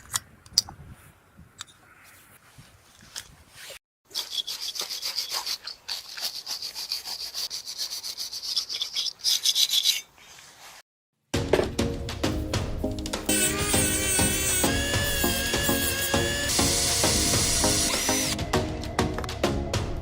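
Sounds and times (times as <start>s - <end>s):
hand abrasive tool rubbing: 3.6s - 10.8s, 13.3s - 18.4s.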